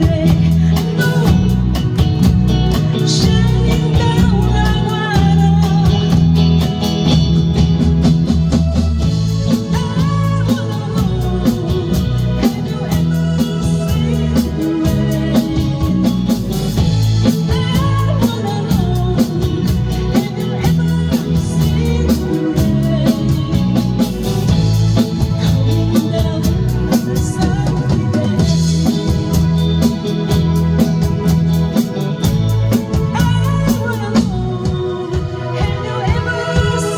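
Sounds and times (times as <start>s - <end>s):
bass: 0.0s - 36.9s
drum kit beat: 0.0s - 36.9s
electric guitar: 0.0s - 36.9s
organ: 0.0s - 36.9s.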